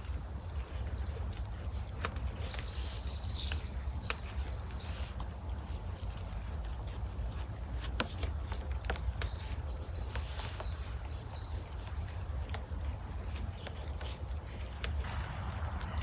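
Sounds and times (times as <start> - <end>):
steady low rumble: 15.0 - 16.0.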